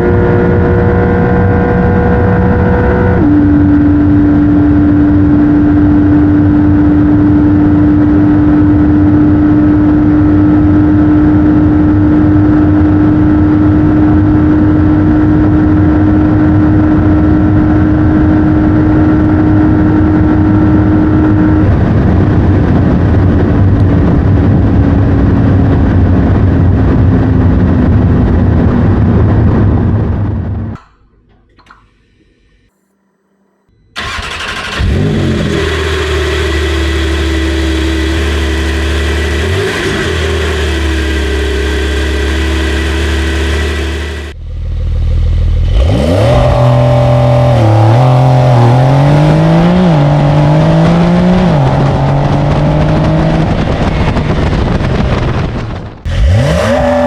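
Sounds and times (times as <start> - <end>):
wind noise: 0.0 - 30.8, 44.3 - 57.0
car engine droning: 0.0 - 57.0.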